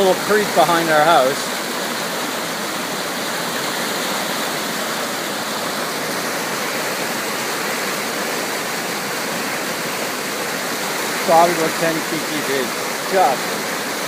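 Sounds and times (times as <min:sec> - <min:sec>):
floodwater roaring in creek: 0:00.0 - 0:14.0.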